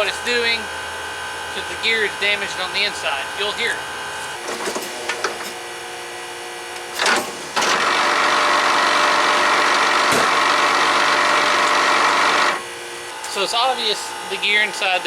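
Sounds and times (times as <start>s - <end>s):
headlight motor whirring grind: 7.0s - 12.7s.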